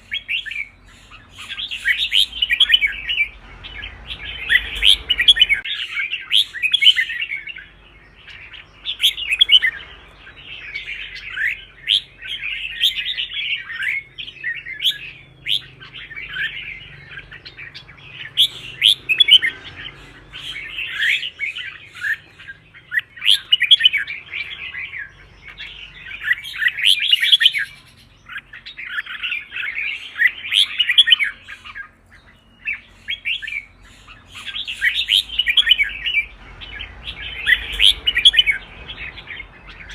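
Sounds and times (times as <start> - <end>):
bird singing whistled phrases: 0.0 - 3.3.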